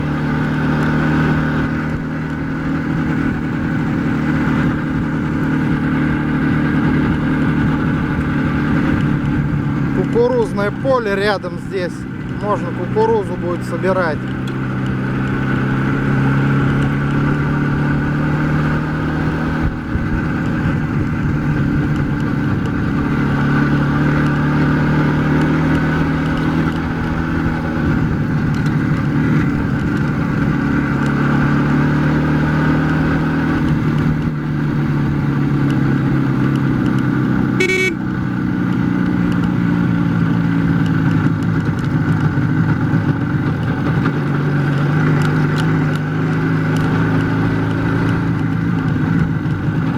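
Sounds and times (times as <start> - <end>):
motorcycle engine running: 0.0 - 49.9
horn toot: 37.5 - 38.1.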